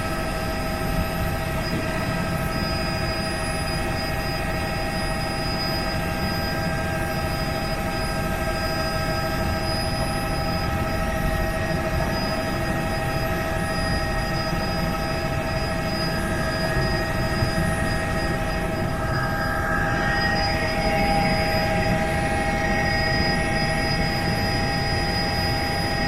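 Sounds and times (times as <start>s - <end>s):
helicopter rotor and engine drone: 0.0s - 26.0s
steady whining tones: 0.0s - 26.0s.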